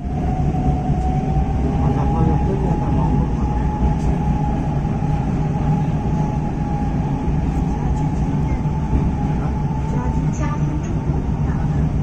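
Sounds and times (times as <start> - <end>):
train rumble from inside: 0.0 - 12.0.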